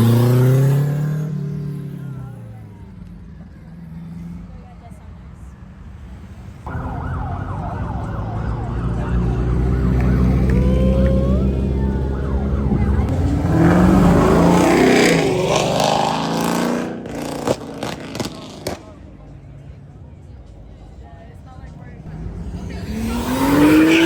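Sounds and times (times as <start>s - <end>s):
car engine running: 0.0s - 24.0s
road noise: 0.0s - 24.0s
police siren yelping and wailing: 6.7s - 14.7s, 22.7s - 24.0s.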